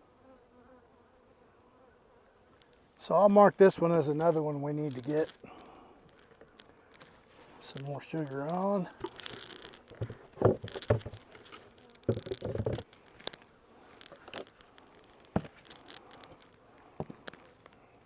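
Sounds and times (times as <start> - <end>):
rustling: 6.1 - 17.8
knocks on beehive equipment: 10.0 - 11.3, 12.1 - 12.8.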